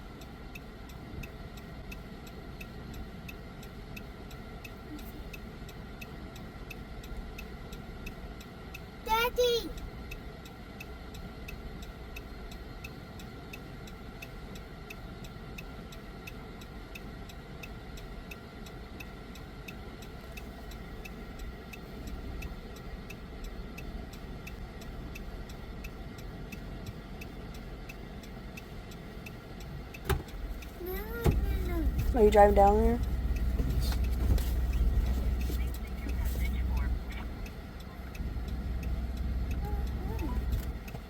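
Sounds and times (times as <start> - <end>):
engine and road hum: 0.0 - 41.0
indicator relay clicking: 20.7 - 41.0.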